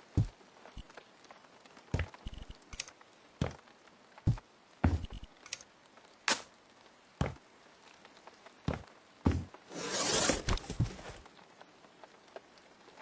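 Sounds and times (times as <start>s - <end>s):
knocks and clunks: 4.3s - 5.3s
rough rasping noise: 9.7s - 11.2s.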